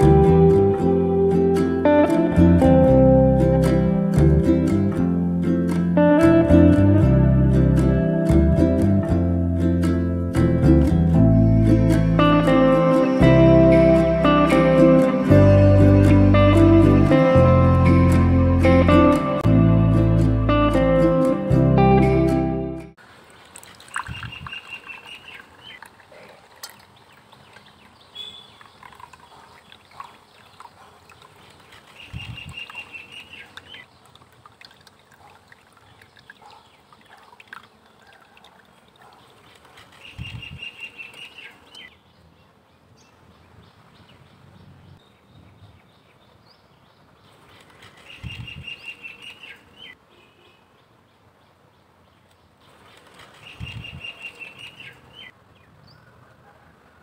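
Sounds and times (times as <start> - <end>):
faint bird chirps: 24.0 - 25.8, 27.4 - 33.9, 52.3 - 56.2.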